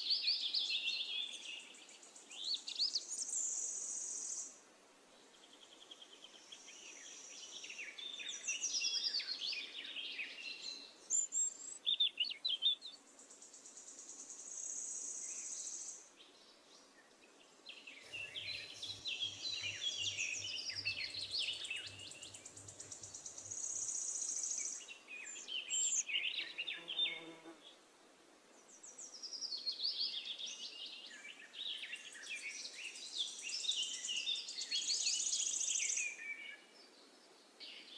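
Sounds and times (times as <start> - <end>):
birds chirping and trilling: 14.6 - 27.3.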